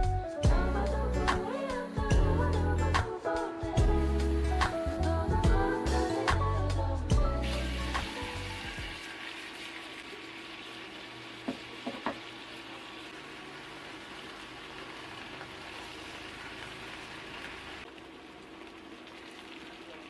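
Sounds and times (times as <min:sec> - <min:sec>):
food sizzling in a pan: 0:07.2 - 0:20.0.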